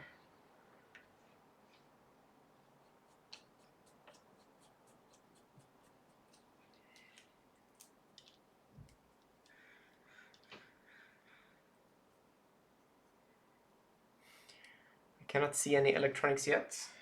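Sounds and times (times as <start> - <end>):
faint small clicks: 6.7 - 9.6, 10.3 - 10.7.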